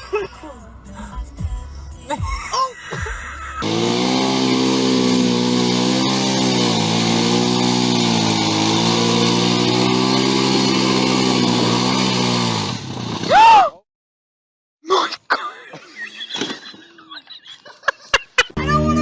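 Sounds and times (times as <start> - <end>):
engine running steadily: 3.4 - 13.3.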